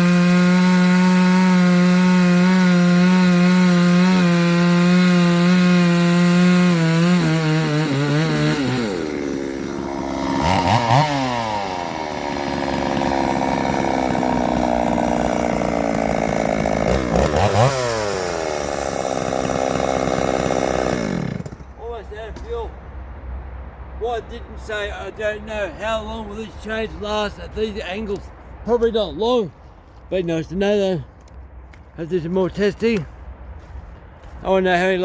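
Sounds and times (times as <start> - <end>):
chainsaw cutting wood: 0.0 - 21.8
chainsaw revving: 0.0 - 21.8.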